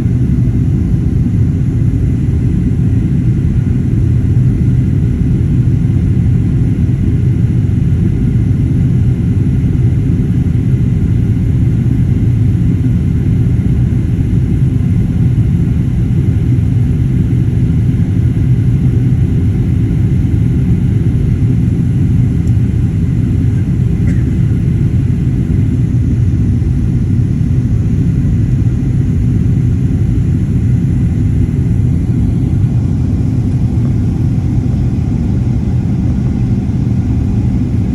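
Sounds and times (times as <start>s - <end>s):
airliner cabin rumble: 0.0s - 37.9s.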